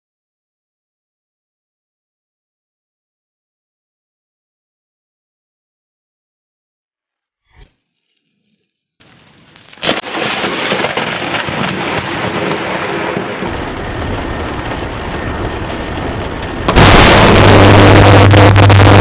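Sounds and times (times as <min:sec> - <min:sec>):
lightning crack: 0:09.9 - 0:19.0
heavy rain: 0:10.0 - 0:19.0
rumbling thunder: 0:10.1 - 0:19.0.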